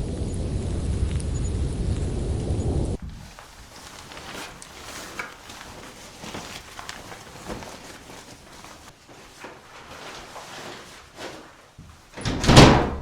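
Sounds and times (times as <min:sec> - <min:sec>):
light crunches and knocks: 0:03.0 - 0:12.3.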